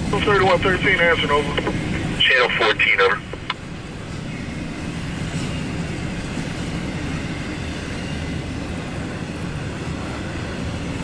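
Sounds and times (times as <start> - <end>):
freight train rumbling by: 0.0 - 11.0.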